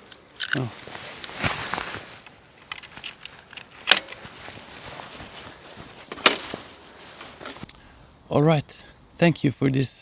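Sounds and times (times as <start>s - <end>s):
light rustling: 0.0s - 7.7s.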